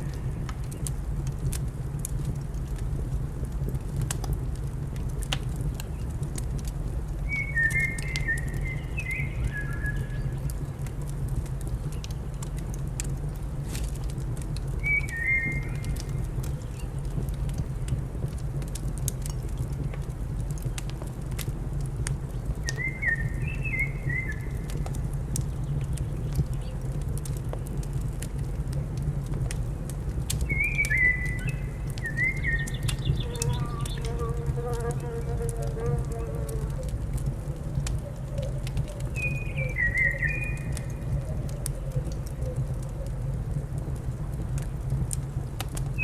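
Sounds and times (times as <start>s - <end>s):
fireplace fire crackling: 0.0s - 46.0s
small bird chirping: 30.4s - 34.2s.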